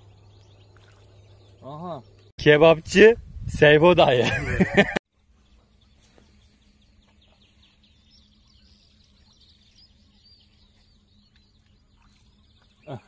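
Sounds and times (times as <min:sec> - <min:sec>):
faint birds chirping: 0:00.0 - 0:02.6, 0:04.2 - 0:13.0
low steady hum: 0:04.2 - 0:13.0.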